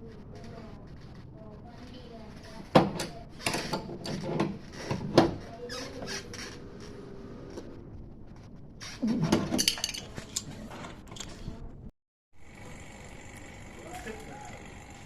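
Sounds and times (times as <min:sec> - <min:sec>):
metal parts clinking and clattering: 0:09.4 - 0:10.5.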